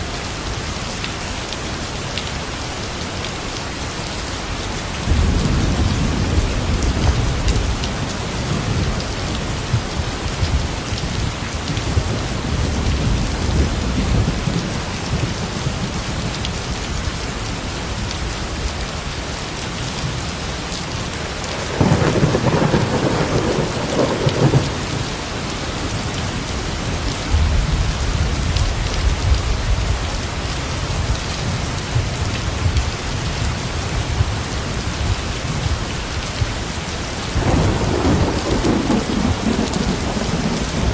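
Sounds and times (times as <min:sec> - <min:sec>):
heavy rain falling: 0:00.0 - 0:40.9
thunder rolling: 0:21.5 - 0:25.2, 0:37.4 - 0:40.9
sharp thunderclap: 0:21.6 - 0:25.0, 0:37.4 - 0:40.9.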